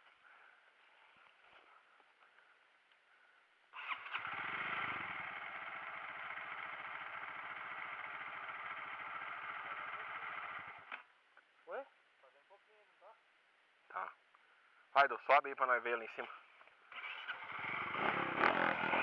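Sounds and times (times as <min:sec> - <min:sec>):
dirt bike engine idling: 0:03.2 - 0:11.1, 0:16.9 - 0:19.0.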